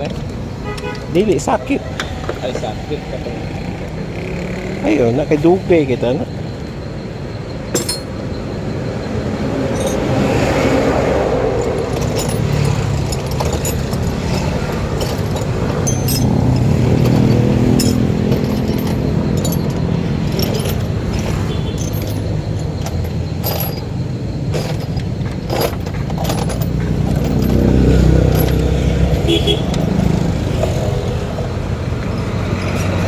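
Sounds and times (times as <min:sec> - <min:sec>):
metallic clinks: 0:07.6 - 0:08.6, 0:09.6 - 0:33.0
engine running: 0:11.3 - 0:33.0.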